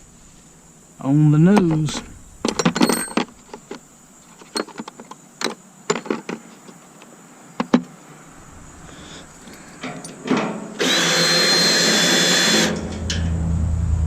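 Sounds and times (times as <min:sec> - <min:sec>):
metal tools clinking and rattling: 0:01.5 - 0:05.0, 0:08.3 - 0:10.8.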